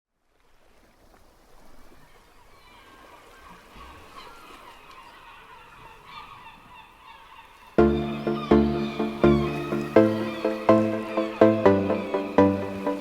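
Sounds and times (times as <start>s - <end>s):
birds chirping: 5.0s - 13.0s.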